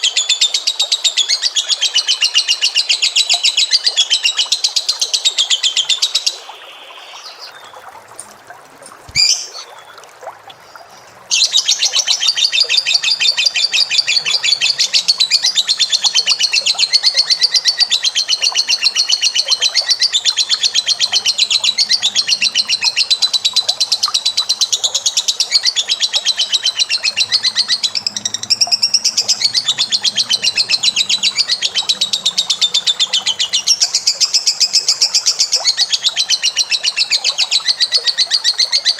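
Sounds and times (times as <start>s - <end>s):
bird chattering trill: 9.2s - 9.7s, 11.3s - 36.8s.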